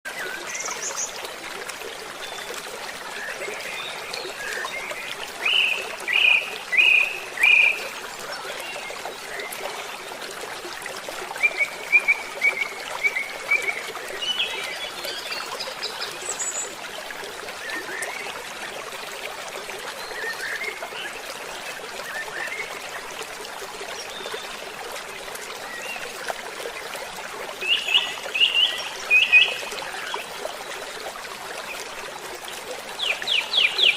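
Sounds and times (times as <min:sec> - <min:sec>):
water trickling: 0:00.1 - 0:33.9
songbirds singing: 0:03.1 - 0:10.0, 0:27.6 - 0:30.9, 0:32.9 - 0:33.9.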